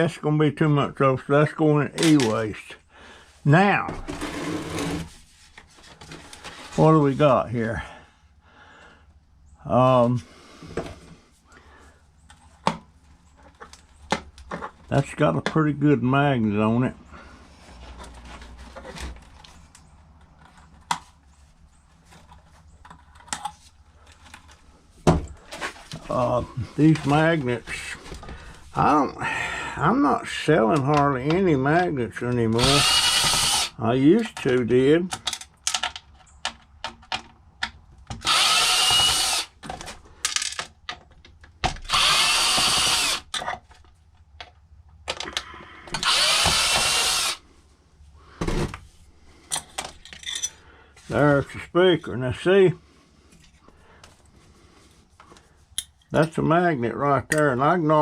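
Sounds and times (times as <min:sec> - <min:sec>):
clicks of parts and tools: 0:02.0 - 0:02.4, 0:22.1 - 0:24.6, 0:34.2 - 0:42.0, 0:42.6 - 0:47.2, 0:49.4 - 0:50.6, 0:55.2 - 0:56.4
cordless drill backing out screws: 0:32.6 - 0:33.7, 0:38.1 - 0:39.9, 0:41.7 - 0:43.6, 0:45.9 - 0:47.4
handling clicks and taps: 0:34.2 - 0:38.2.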